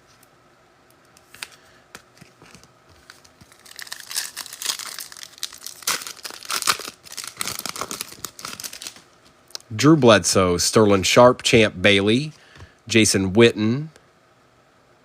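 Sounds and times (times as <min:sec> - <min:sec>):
foil wrapper tearing and crinkling: 0:02.4 - 0:09.1.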